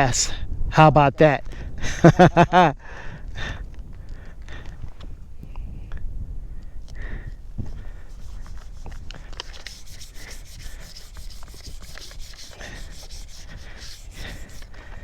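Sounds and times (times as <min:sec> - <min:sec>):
rubbing and scratching: 0:07.6 - 0:15.0.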